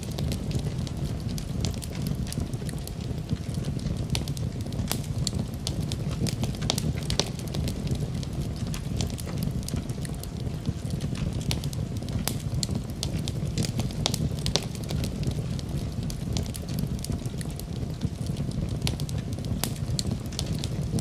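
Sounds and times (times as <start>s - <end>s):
fire popping and snapping: 0.0s - 21.0s
fire rumble: 0.0s - 21.0s.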